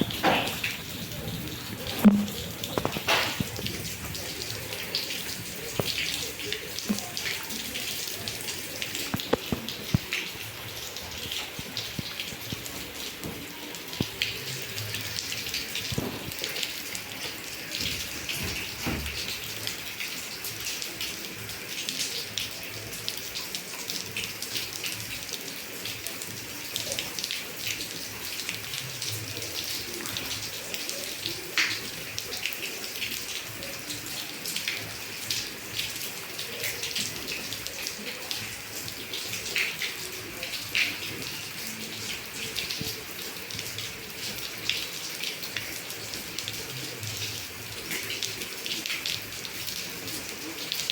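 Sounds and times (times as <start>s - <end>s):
rain falling: 0.0s - 50.9s
water drops splashing: 1.9s - 3.8s.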